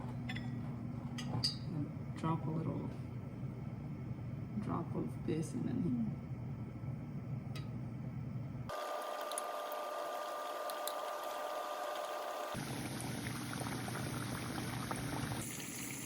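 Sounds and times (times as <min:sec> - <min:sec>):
batter frying in hot oil: 0:08.7 - 0:16.0.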